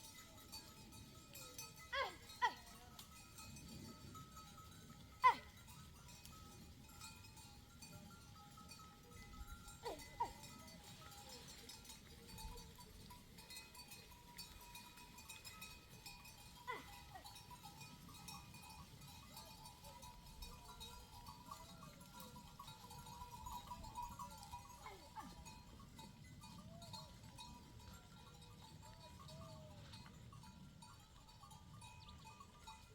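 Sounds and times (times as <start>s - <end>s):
small bells tinkling: 0.0s - 32.9s
sheep and goats bleating: 5.2s - 5.6s, 16.6s - 17.4s.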